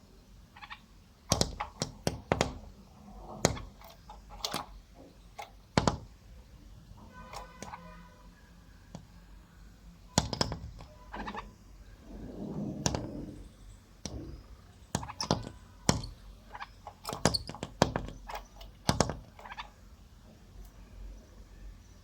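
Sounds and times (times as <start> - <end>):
sharp taps and knocks: 1.3 - 2.7, 3.3 - 6.1, 10.1 - 11.5, 14.0 - 19.7.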